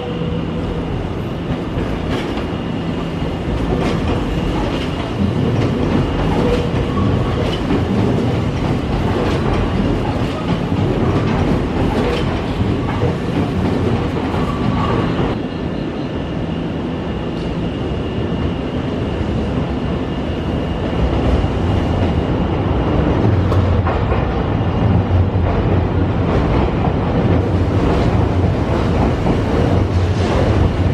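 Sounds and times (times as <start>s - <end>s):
train running rumble: 0.0s - 30.9s
train wheels clicking over rail joints: 3.5s - 15.4s.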